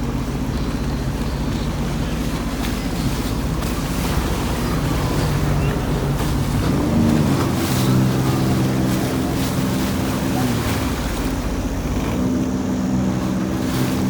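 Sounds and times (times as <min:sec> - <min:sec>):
surf: 0:00.0 - 0:14.0
watercraft engine running: 0:00.0 - 0:14.0
wind: 0:00.0 - 0:14.0.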